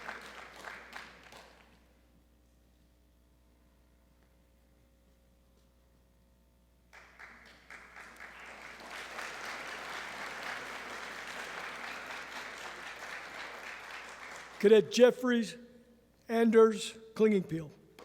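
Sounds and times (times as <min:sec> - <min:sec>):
audience applauding: 0:00.0 - 0:01.8, 0:06.9 - 0:14.8.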